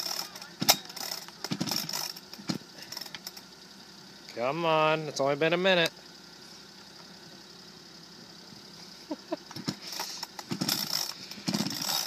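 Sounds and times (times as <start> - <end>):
chainsaw recoil starter pull: 0.0 - 3.4, 9.5 - 12.0.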